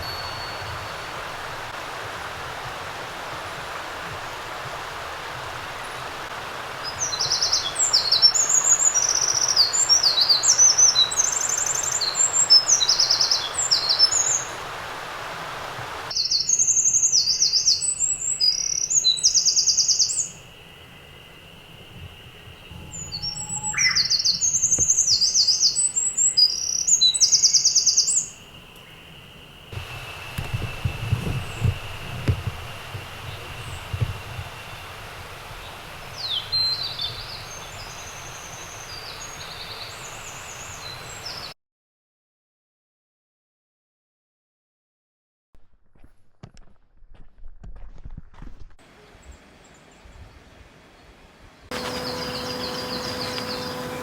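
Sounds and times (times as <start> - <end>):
steady hiss: 0.0 - 23.5, 27.9 - 41.5, 48.9 - 54.0
songbird trilling: 6.9 - 14.5, 16.1 - 32.2, 51.7 - 54.0.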